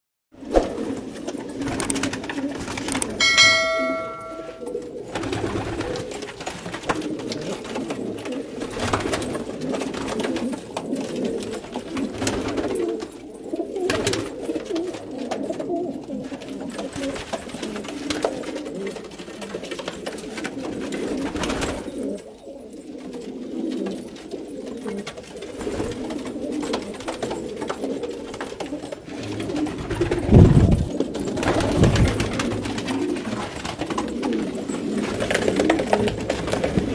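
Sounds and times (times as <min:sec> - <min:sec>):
pigeons cooing: 0:00.4 - 0:36.9
short ringing tone: 0:03.2 - 0:04.8.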